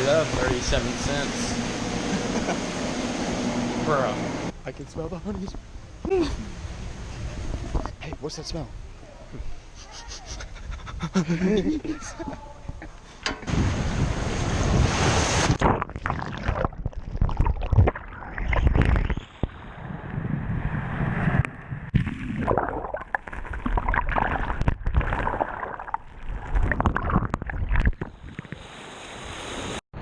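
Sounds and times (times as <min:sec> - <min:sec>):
wind buffeting microphone: 0:13.4 - 0:15.6
surf: 0:13.5 - 0:15.7.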